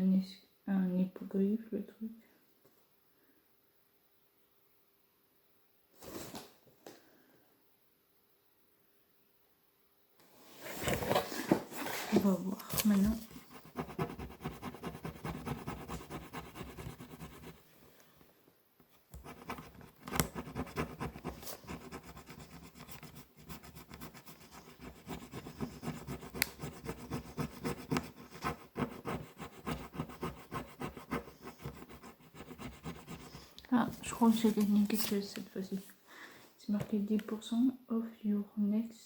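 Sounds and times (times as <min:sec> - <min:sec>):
hand scratching and rubbing: 0:10.5 - 0:17.6, 0:19.2 - 0:35.3.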